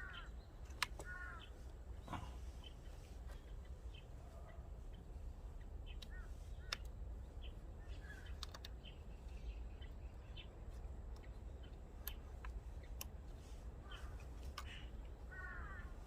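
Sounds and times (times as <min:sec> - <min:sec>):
birds chirping: 0:00.0 - 0:16.0
sharp clicks: 0:00.6 - 0:01.2, 0:05.9 - 0:07.0, 0:08.2 - 0:09.0, 0:11.0 - 0:13.3.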